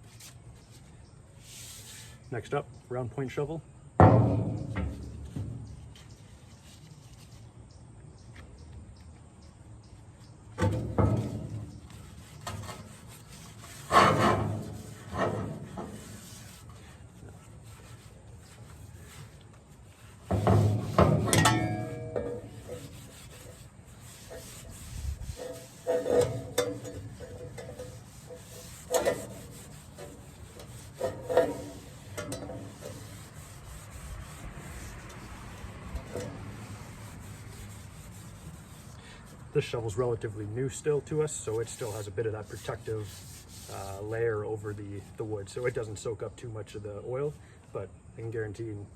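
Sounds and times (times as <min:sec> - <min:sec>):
rag rubbing wooden handle: 0:11.1 - 0:39.6, 0:41.2 - 0:45.8.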